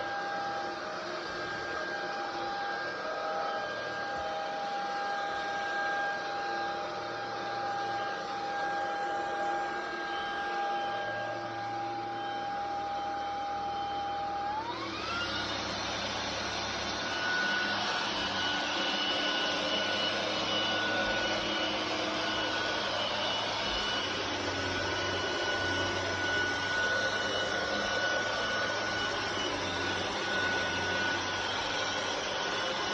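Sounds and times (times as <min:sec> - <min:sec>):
stick vacuum motor whining: 0:00.0 - 0:32.9.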